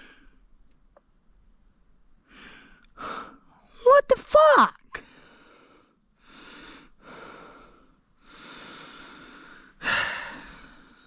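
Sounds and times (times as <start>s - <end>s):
person breathing heavily: 2.3s - 3.5s, 5.0s - 11.0s.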